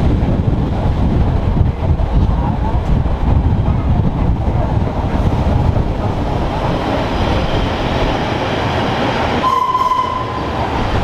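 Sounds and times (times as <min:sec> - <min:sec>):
train rumbling on rails: 0:00.0 - 0:11.0.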